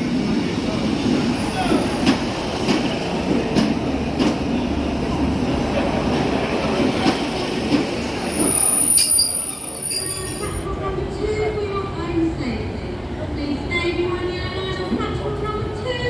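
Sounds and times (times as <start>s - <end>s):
train rumbling on rails: 0.0s - 16.0s
high-pitched wheel squeal: 8.2s - 10.7s.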